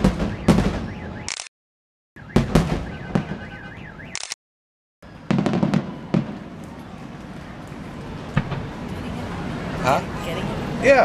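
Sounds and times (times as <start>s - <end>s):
fireworks bangs and crackles: 0.0s - 1.3s, 2.2s - 3.9s, 5.0s - 9.8s.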